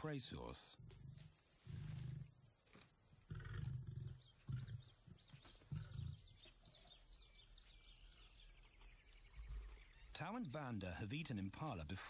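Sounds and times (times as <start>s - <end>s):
lion grunting deeply: 0.6s - 2.4s, 3.2s - 8.0s
faint high bird chirps: 4.0s - 10.2s.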